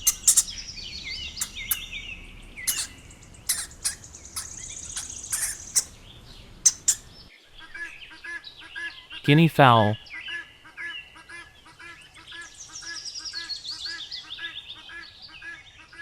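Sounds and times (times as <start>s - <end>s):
hamster squeaking: 0.0s - 7.3s
sharp clicks: 0.0s - 7.3s.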